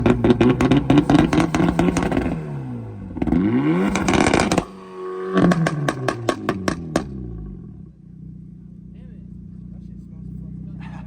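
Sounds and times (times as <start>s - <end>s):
exhaust pops and crackles: 0.0s - 2.5s, 3.2s - 11.0s
car engine on launch limiter: 0.0s - 8.5s.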